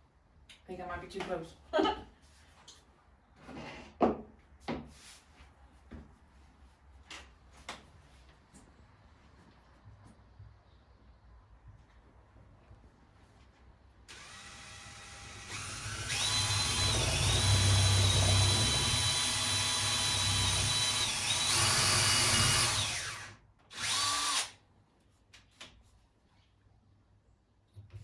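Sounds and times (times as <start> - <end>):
power drill whining: 14.1 - 24.5.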